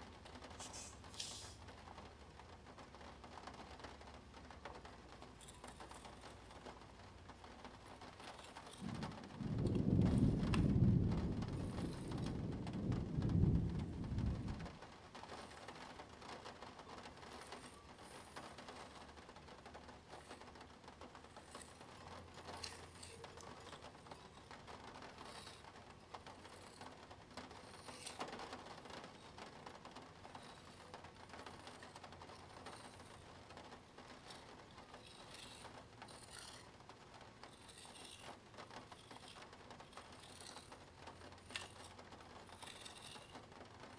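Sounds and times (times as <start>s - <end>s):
plastic gear scratching and ticking: 3.0s - 43.9s
low rumbling handling noise: 8.8s - 14.8s.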